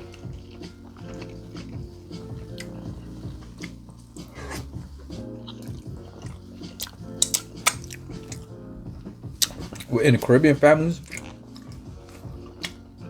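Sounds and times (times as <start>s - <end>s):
person chewing and smacking food: 0.0s - 13.0s
quiet background music: 0.0s - 13.0s
sharp mouth clicks: 5.5s - 8.4s.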